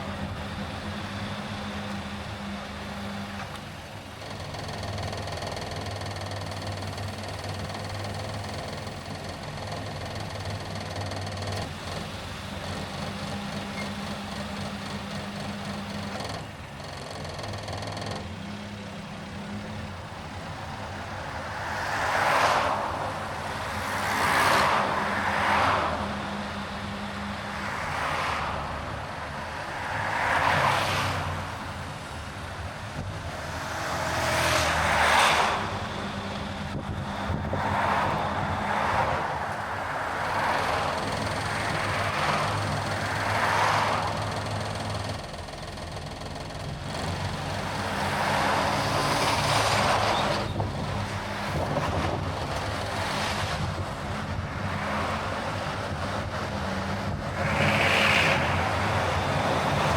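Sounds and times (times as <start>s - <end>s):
car engine and road hum: 0.0s - 59.9s
vehicles rushing past: 17.4s - 59.9s.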